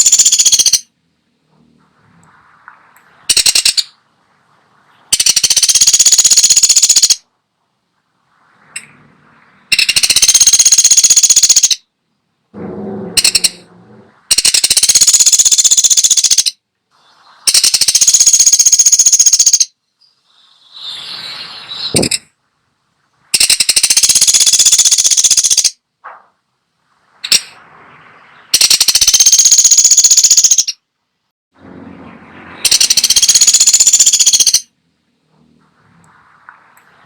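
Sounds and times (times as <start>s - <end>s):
woodpecker rattling calls: 0.0s - 0.9s, 3.3s - 4.0s, 5.1s - 7.2s, 9.7s - 11.8s, 13.2s - 13.6s, 14.3s - 16.6s, 17.5s - 21.0s, 23.3s - 25.8s, 28.5s - 30.8s, 32.6s - 34.7s
low-pitched bird call: 12.6s - 16.4s, 17.0s - 22.3s, 31.6s - 34.7s.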